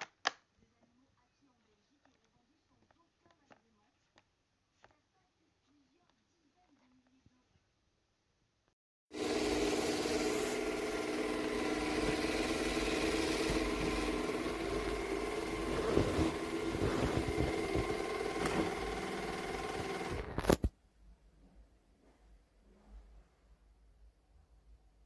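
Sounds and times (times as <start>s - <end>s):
robot vacuum cleaner running: 9.1s - 20.7s.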